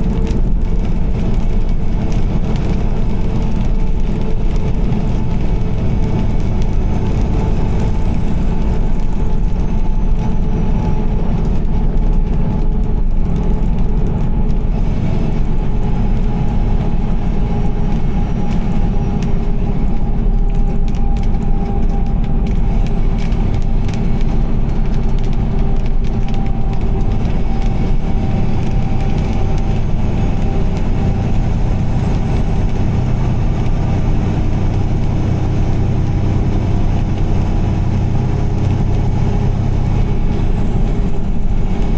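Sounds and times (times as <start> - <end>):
car road noise on wet highway: 0.0 - 41.9.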